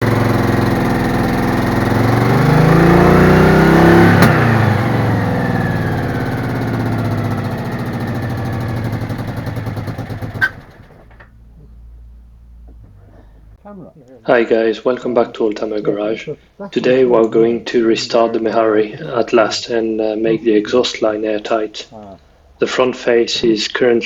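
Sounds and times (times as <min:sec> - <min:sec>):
car engine revving: 0:00.0 - 0:13.6.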